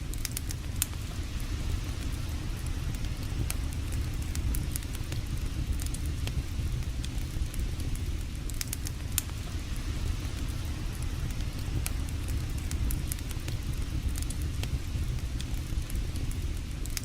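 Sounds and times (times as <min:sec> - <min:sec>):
campfire crackling and popping: 0:00.0 - 0:17.0
low rumble: 0:00.0 - 0:17.0.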